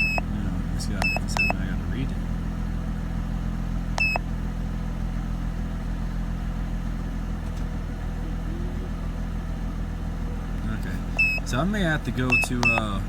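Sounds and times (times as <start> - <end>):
car engine idling: 0.0 - 13.0
short high electronic beep: 11.2 - 11.4.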